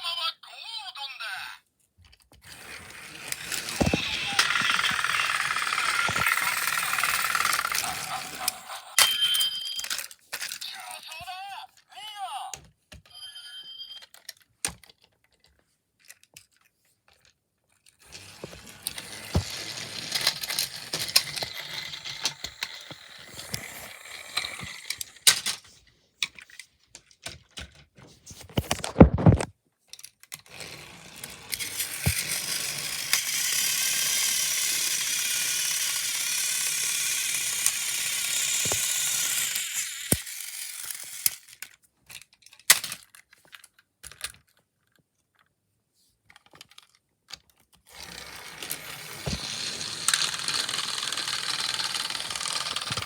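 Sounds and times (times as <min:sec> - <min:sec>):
toy train motor whirring: 0:02.4 - 0:11.5, 0:18.0 - 0:26.6, 0:30.3 - 0:43.1, 0:47.8 - 0:53.0.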